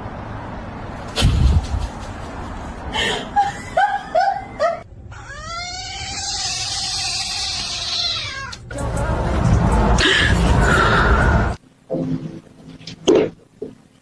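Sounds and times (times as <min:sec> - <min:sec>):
cat yowling: 0:05.1 - 0:08.6
cat meowing: 0:05.1 - 0:08.7
loud noisy stretch: 0:08.7 - 0:11.6.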